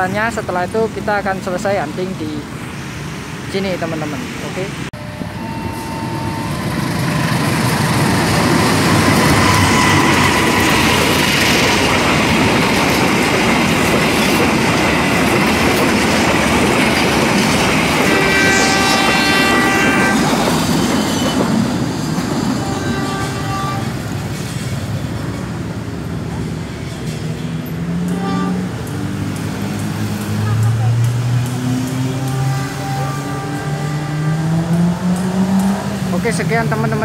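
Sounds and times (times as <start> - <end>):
pitched tone: 5.0 - 12.0
train wheels rumbling and clattering: 6.1 - 37.0.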